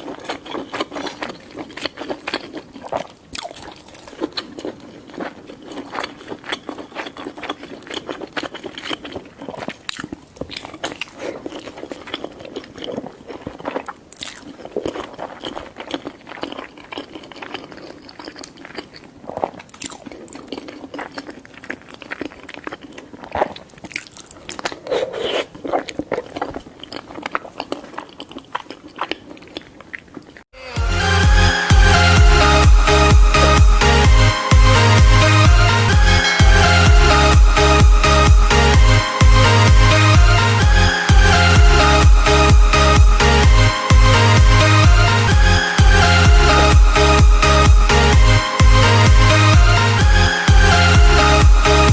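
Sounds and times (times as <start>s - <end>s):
crunching and chewing crisp food: 0.0s - 30.5s.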